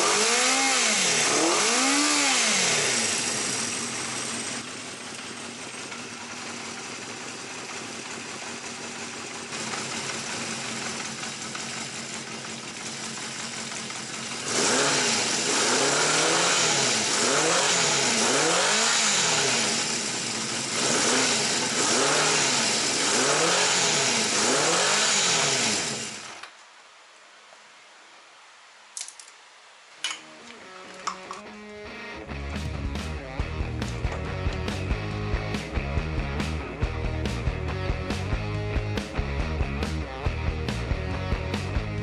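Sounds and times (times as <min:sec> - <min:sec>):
motorcycle engine idling and revving: 0:00.0 - 0:26.4, 0:32.2 - 0:42.0.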